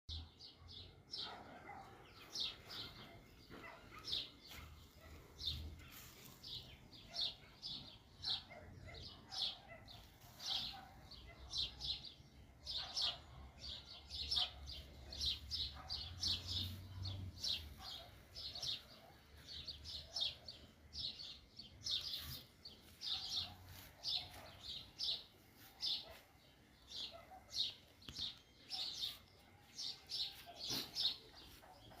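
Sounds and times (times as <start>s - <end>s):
small birds chirping: 0.1s - 32.0s.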